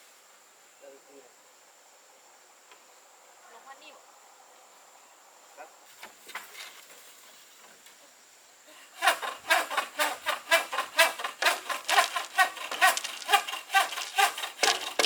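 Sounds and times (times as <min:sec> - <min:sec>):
hand saw cutting wood: 0:09.0 - 0:15.0.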